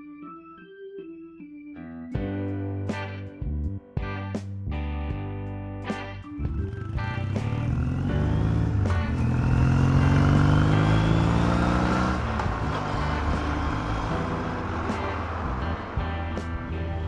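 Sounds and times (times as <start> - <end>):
motorcycle engine accelerating: 6.5 - 17.0.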